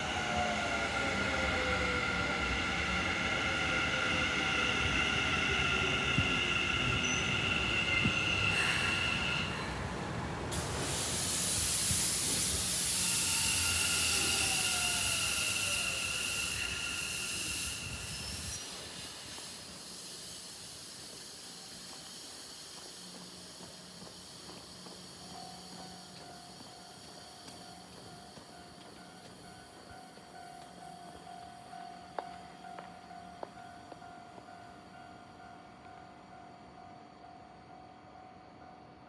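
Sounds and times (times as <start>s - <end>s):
train wheel squeal: 0.0s - 38.0s
electric train passing: 0.0s - 39.0s
loud hiss: 10.5s - 31.3s.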